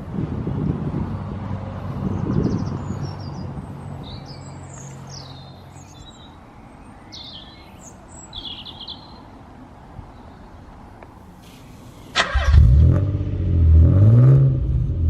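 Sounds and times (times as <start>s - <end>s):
vehicle engine low hum: 0.0s - 6.3s, 10.7s - 15.0s
outdoor background noise: 0.0s - 15.0s
birds chirping: 1.9s - 12.4s.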